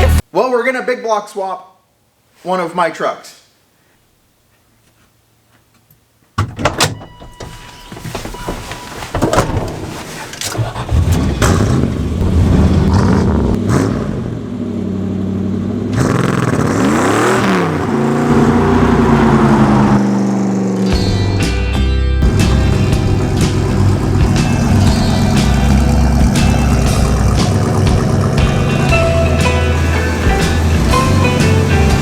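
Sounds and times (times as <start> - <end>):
truck engine starting and revving: 9.6 - 32.0.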